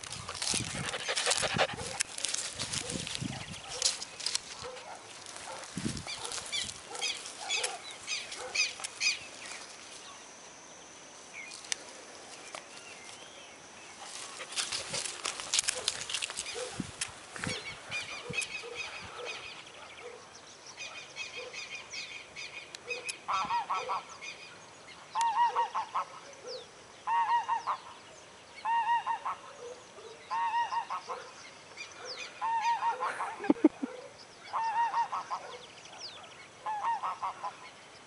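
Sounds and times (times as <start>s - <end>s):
small birds chirping: 0.0s - 10.4s, 11.3s - 23.3s.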